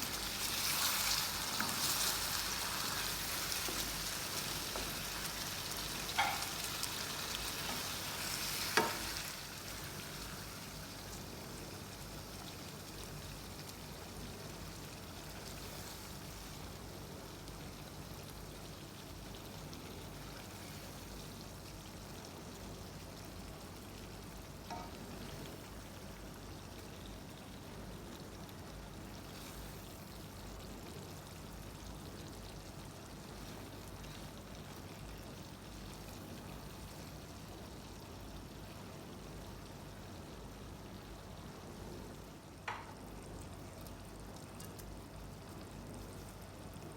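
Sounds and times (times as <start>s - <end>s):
food sizzling in hot oil: 0.0s - 41.6s.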